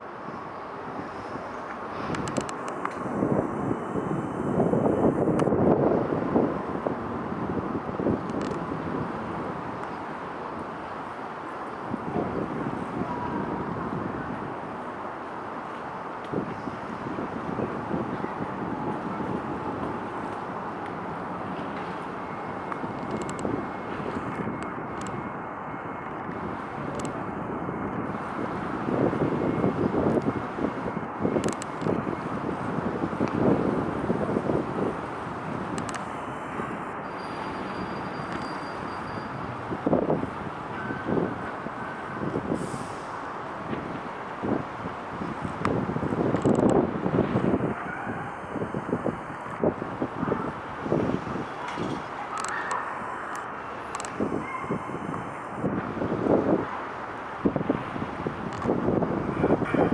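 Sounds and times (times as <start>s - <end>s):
wind buffeting microphone: 0.0s - 59.9s
faint clicks: 1.7s - 3.0s, 22.7s - 23.5s, 35.7s - 36.2s, 51.0s - 54.3s
faint thin whine: 35.5s - 39.5s.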